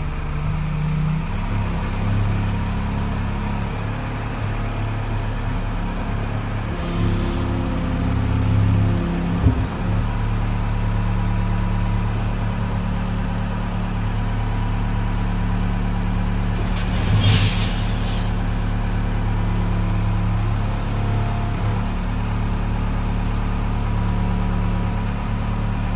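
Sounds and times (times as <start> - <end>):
loader engine running: 0.0 - 25.9.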